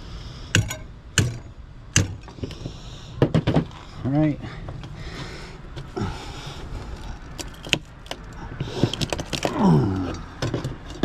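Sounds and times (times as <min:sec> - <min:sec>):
metallic clicks of scrap parts: 0:06.8 - 0:11.0
person grunting: 0:09.5 - 0:10.3.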